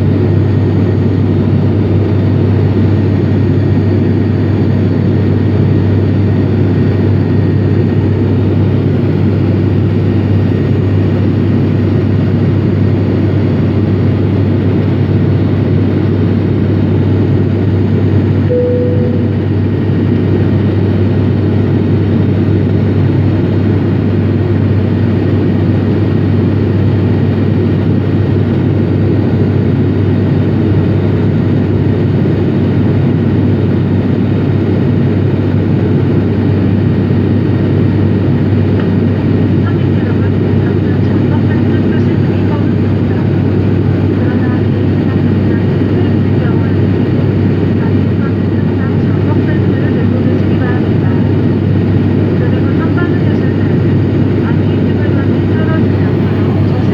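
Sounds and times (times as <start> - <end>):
turboprop cabin drone: 0.0 - 56.9
brief single tone: 18.5 - 19.8.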